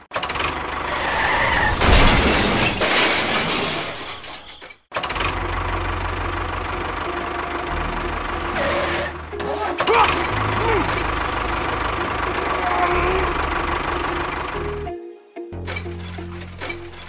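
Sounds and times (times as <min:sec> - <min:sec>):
engine idling: 0:05.0 - 0:14.9.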